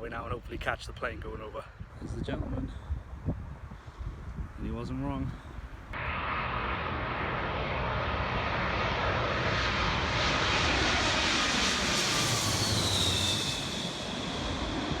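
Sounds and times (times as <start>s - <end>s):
jet engine roar: 5.9s - 15.0s
high engine whine: 6.0s - 15.0s.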